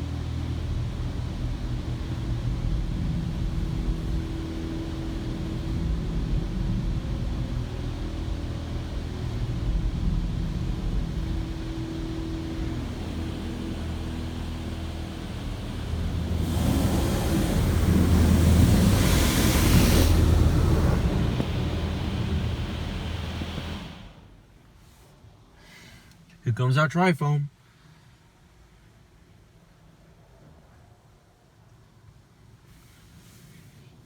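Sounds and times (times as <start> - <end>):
car wash water jets rumbling: 0.0 - 24.3
faint steady hum: 0.0 - 24.7.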